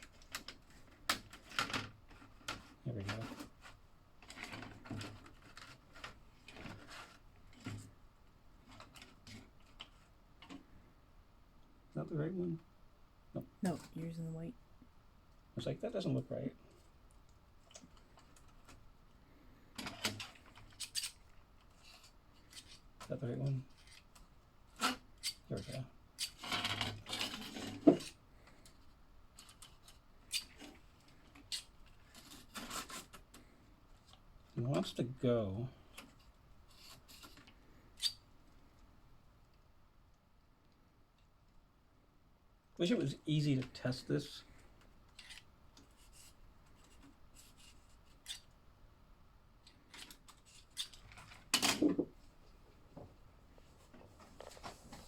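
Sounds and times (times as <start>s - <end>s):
plastic slot car clicks and scrapes: 19.8s - 22.9s, 23.7s - 33.4s, 36.0s - 38.2s, 45.1s - 48.5s, 49.7s - 51.9s.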